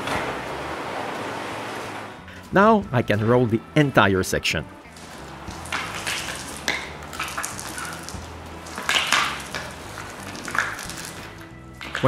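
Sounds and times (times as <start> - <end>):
faint background music: 0.0 - 12.0
paint roller on wet epoxy: 4.9 - 12.0.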